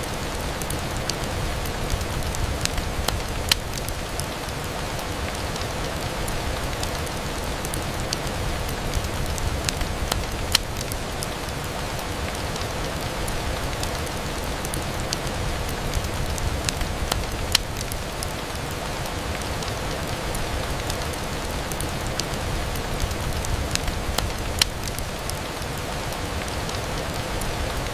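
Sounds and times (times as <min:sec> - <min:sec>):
rain on a window: 0:00.0 - 0:27.9
sharp pops and ticks: 0:01.9 - 0:04.3, 0:08.9 - 0:11.0, 0:15.9 - 0:18.0, 0:23.0 - 0:25.8.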